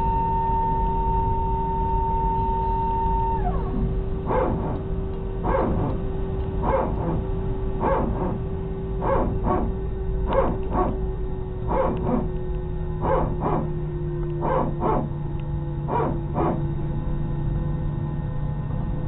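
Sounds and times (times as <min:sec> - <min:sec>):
airliner cabin drone: 0:00.0 - 0:19.0
dog barking: 0:04.3 - 0:04.7, 0:11.7 - 0:12.2, 0:13.0 - 0:13.7, 0:14.4 - 0:15.1.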